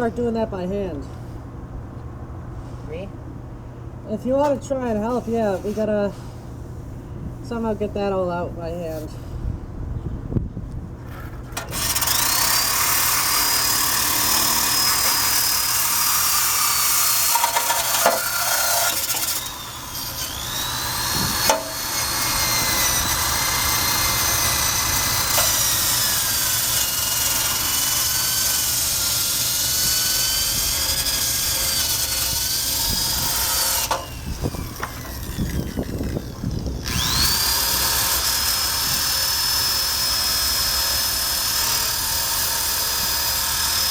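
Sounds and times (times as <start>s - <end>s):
drill wire brush scraping metal: 11.1s - 43.9s.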